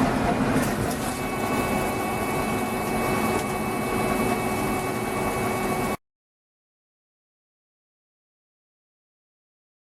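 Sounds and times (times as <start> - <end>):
lathe running: 0.6 - 6.0
high whines: 0.7 - 6.0.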